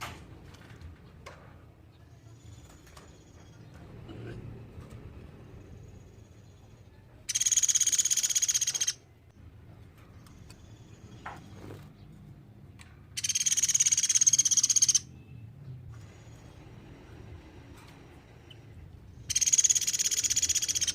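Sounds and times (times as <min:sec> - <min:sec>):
woodpecker trilled call: 0:07.3 - 0:09.0, 0:13.2 - 0:15.1, 0:19.3 - 0:20.9.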